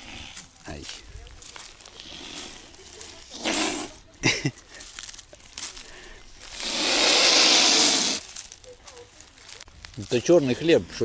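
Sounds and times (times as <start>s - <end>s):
waterfowl hissing: 2.0s - 2.7s, 3.3s - 4.0s, 6.5s - 8.3s.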